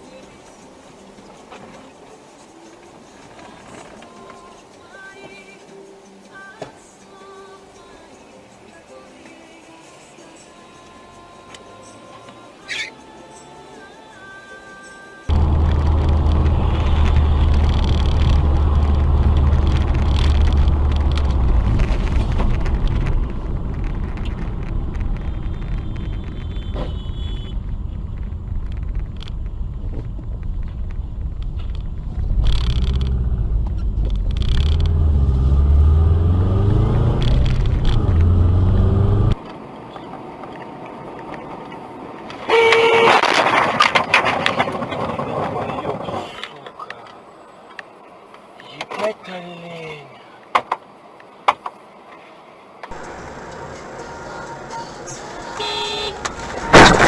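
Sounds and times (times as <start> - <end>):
car engine and road rumble: 15.3 - 57.0
car horn: 25.4 - 27.7, 42.4 - 43.4, 55.4 - 57.0.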